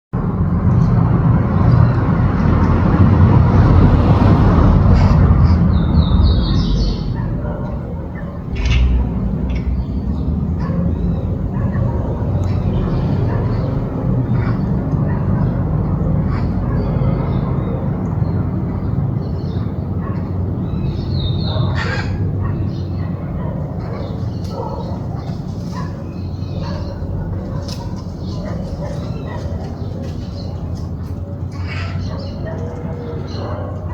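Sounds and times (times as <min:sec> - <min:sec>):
loud steady low rumble: 0:00.2 - 0:19.1
parakeets squawking: 0:04.8 - 0:17.4, 0:19.4 - 0:33.5
faint high parakeet calls: 0:21.7 - 0:22.8, 0:31.5 - 0:32.5.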